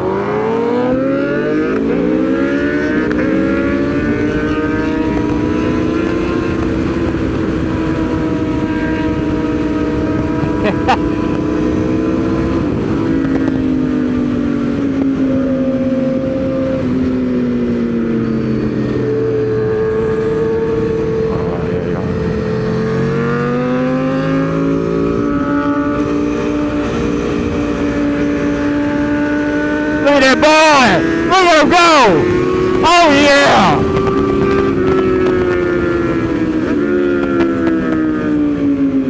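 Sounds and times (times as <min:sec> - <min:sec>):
motorcycle engine running hard: 0:00.0 - 0:39.0
steady rush of noise: 0:29.3 - 0:33.8.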